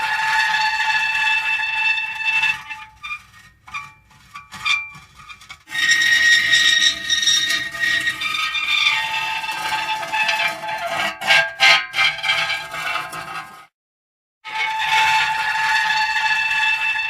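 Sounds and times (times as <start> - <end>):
metal creaking and squealing: 0.0 - 13.7, 14.5 - 17.0.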